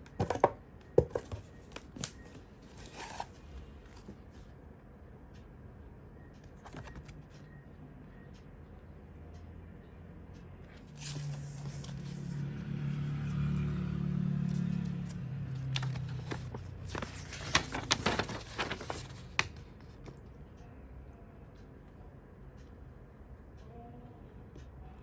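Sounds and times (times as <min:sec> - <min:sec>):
packaging clicks and crinkles: 0:15.6 - 0:20.1
packaging rubbing: 0:15.8 - 0:19.4.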